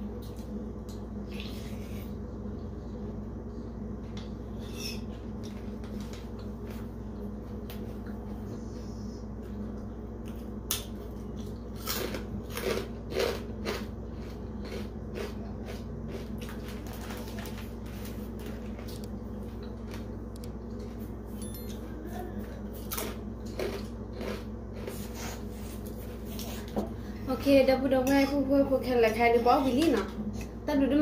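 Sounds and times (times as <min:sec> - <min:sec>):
steady low hum: 0:00.0 - 0:31.0
person chewing with crisp clicks: 0:09.8 - 0:16.8, 0:22.8 - 0:25.1.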